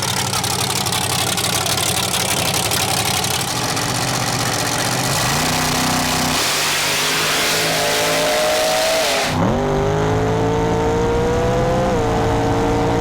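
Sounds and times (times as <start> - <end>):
car engine idling: 0.0 - 9.4.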